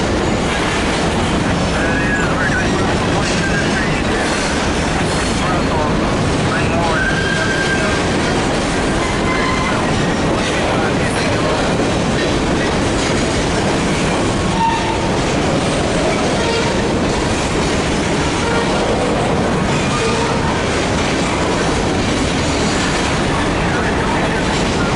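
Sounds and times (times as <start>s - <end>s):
freight train rumbling past: 0.0s - 24.9s
train wheel squeals: 6.9s - 8.1s, 9.0s - 10.2s, 14.6s - 15.1s.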